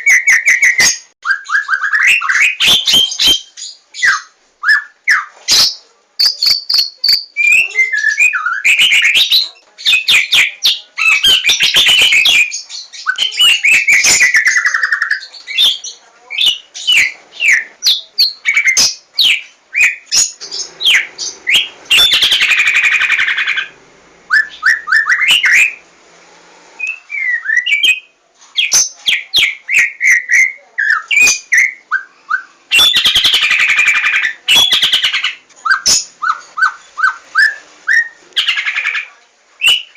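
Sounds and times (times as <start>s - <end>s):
bird singing whistles: 0.0s - 5.3s, 24.3s - 25.8s, 26.8s - 38.2s, 39.6s - 39.9s
bird harsh rasping chatter: 20.1s - 23.8s.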